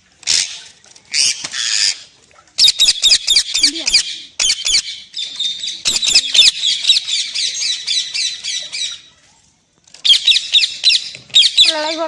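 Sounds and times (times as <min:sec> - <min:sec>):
parrot squawking: 0:02.6 - 0:05.0, 0:05.6 - 0:09.0, 0:10.1 - 0:12.0.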